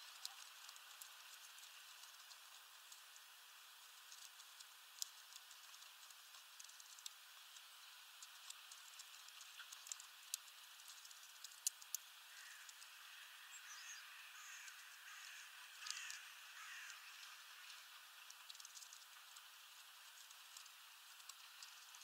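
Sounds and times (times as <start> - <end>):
short falling bird calls: 12.3 - 12.7, 13.6 - 17.1.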